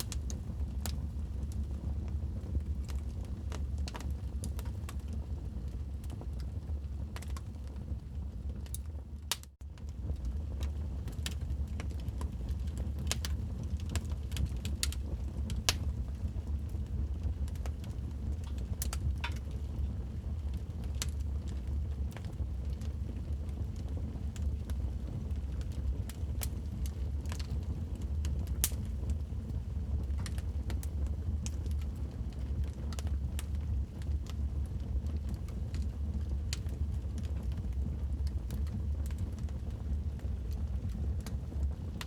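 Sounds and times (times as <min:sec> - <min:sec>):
wood fire crackling: 0:00.0 - 0:42.0.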